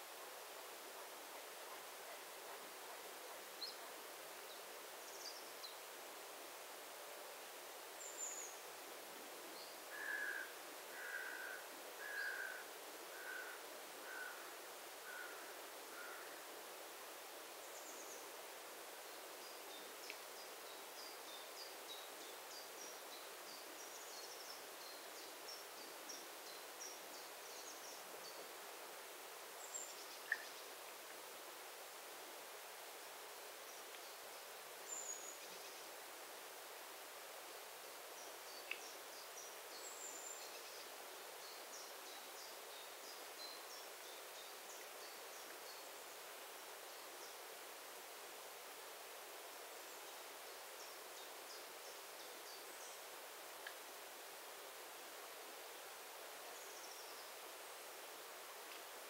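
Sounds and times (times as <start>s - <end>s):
steady outdoor hiss: 0.0s - 59.0s
wild birds calling: 9.9s - 14.5s.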